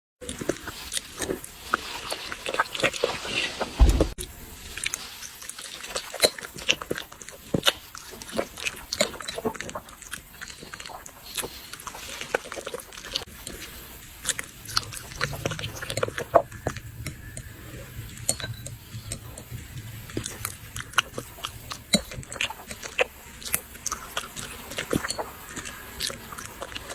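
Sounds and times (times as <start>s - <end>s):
dogs chewing and smacking: 0.2s - 3.7s, 4.7s - 26.9s
heavy thump: 3.8s - 4.2s.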